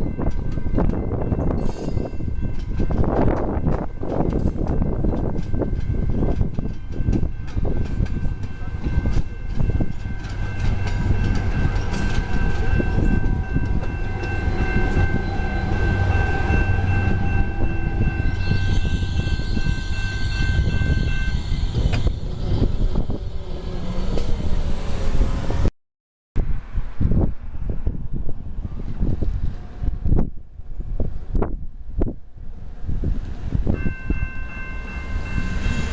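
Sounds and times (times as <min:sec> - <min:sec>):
train rumble and wheel clatter: 0:00.0 - 0:25.7, 0:26.4 - 0:35.9
steady high tones: 0:01.1 - 0:25.7, 0:33.7 - 0:35.9.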